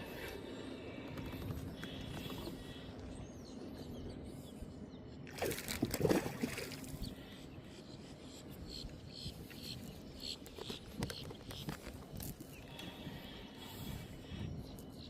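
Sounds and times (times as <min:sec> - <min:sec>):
water trickling and lapping: 0:05.2 - 0:07.4.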